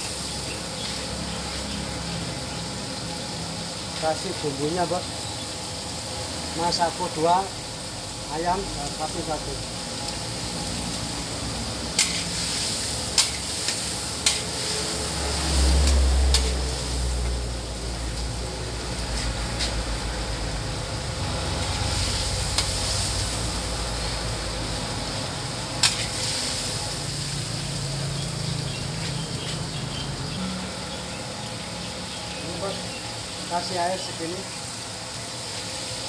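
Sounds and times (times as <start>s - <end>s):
squid sizzling in a wok: 0.0s - 36.0s
metal spatula scraping wok: 11.9s - 16.8s, 25.8s - 26.6s
spatula clanking against wok: 14.2s - 14.5s.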